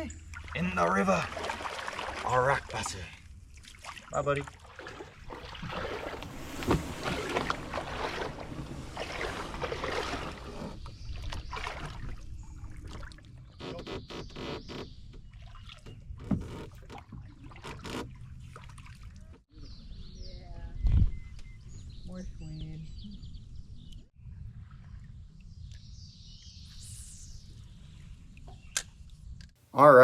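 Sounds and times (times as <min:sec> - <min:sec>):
water splashing around canoe: 0:00.0 - 0:19.4
knocks and clicks on boat: 0:05.3 - 0:12.2, 0:12.8 - 0:19.4.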